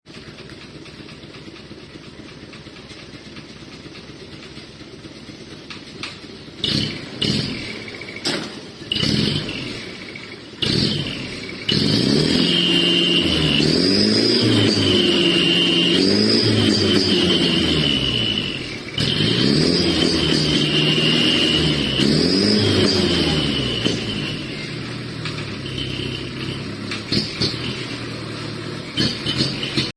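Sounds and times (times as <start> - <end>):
diesel truck engine idling: 0.1 - 29.9
engine blips: 0.1 - 29.9
high whistling tone: 12.3 - 18.5.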